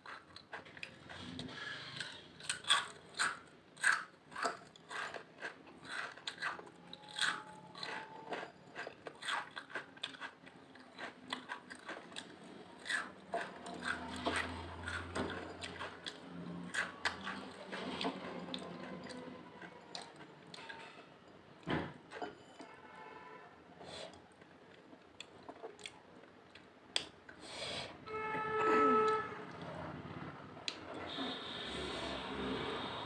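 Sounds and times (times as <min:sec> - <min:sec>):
potato chips crunching: 0:02.4 - 0:15.1.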